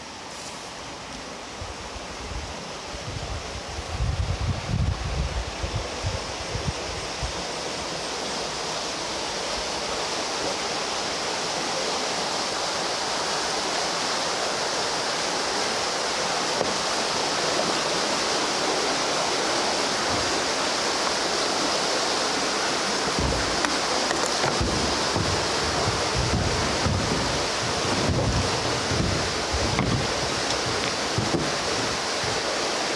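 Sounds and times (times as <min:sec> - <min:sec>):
river water rushing: 0:00.0 - 0:32.9
wind buffeting microphone: 0:01.6 - 0:07.4, 0:23.0 - 0:32.5.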